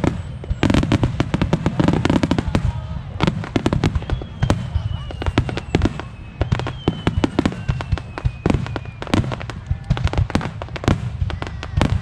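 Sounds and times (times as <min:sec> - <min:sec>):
fireworks cracks and bangs: 0:00.0 - 0:12.0
falling whistle: 0:04.0 - 0:09.2.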